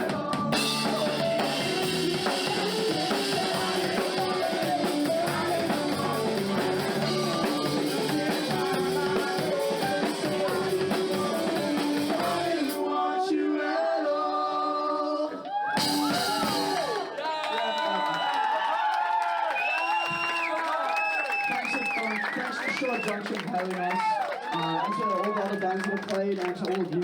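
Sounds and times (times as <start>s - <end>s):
guitar: 0.0s - 12.7s, 15.8s - 17.0s
drums and cymbals: 0.0s - 12.8s, 15.8s - 17.0s
person singing: 0.0s - 17.2s.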